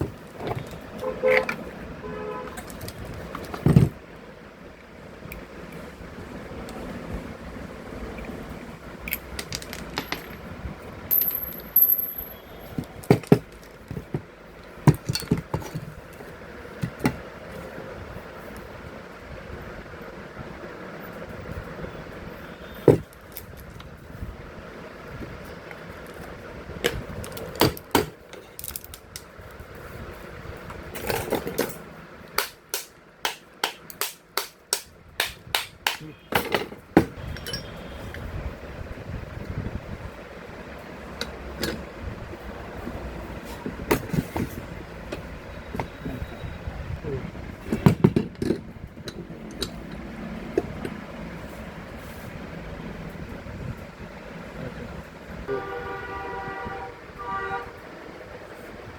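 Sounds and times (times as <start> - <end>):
steady background noise: 0.0 - 58.9
tools and parts clicking: 9.0 - 10.5, 11.1 - 14.1, 14.9 - 17.2, 26.1 - 29.3, 30.9 - 37.8, 47.7 - 51.0
hammer tapping on metal: 32.4 - 36.1.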